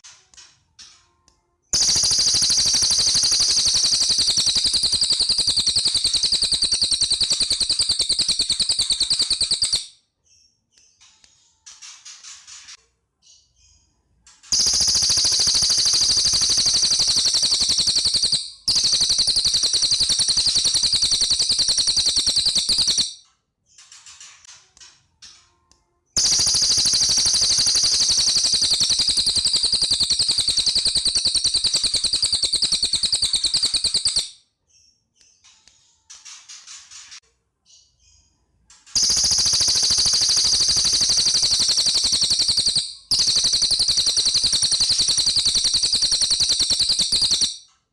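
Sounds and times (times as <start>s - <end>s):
bird chirping: 0.0s - 47.8s
bird rattling trills: 1.8s - 9.9s, 14.5s - 23.2s, 26.2s - 34.3s, 39.0s - 47.6s.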